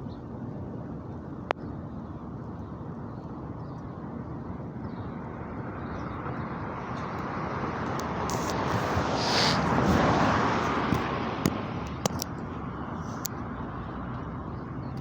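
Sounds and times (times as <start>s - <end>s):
car passing on road: 5.4s - 14.8s.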